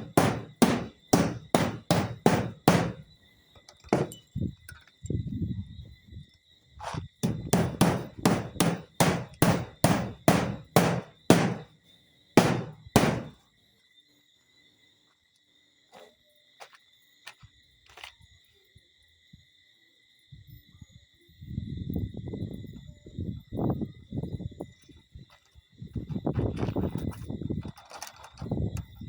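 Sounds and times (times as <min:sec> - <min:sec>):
hammer driving nails into metal: 0:00.0 - 0:03.1, 0:03.9 - 0:04.2, 0:07.2 - 0:11.7, 0:12.4 - 0:13.4.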